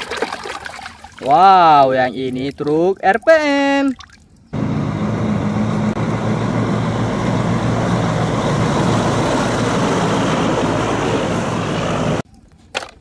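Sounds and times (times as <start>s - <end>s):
truck diesel engine passing: 4.5s - 12.2s
tyre and road noise: 4.5s - 13.0s.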